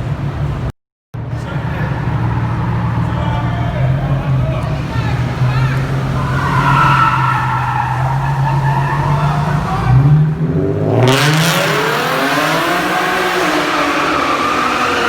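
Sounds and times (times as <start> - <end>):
car engine revving: 0.1 - 15.0
tyre screech: 1.2 - 10.2.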